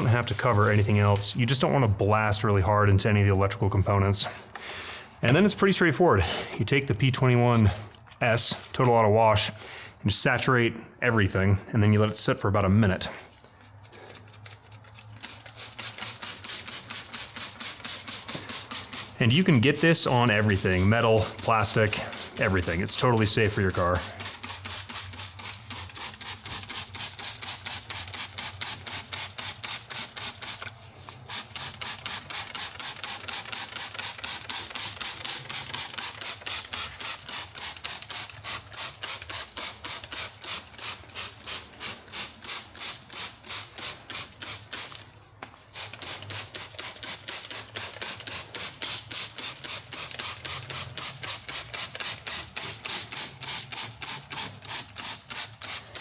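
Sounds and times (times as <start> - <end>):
spray bottle squirting: 0.0 - 1.4, 13.6 - 56.0.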